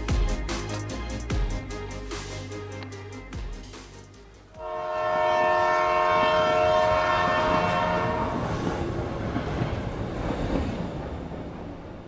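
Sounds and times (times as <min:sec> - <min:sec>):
passing train rumble and clatter: 0:04.2 - 0:12.0
train horn blast: 0:04.5 - 0:08.6.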